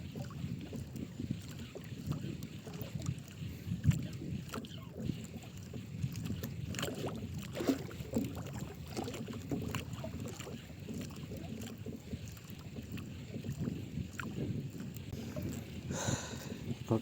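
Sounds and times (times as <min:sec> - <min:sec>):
water splashing against boat hull: 0:00.0 - 0:17.0
wind rumble on microphone: 0:00.0 - 0:17.0.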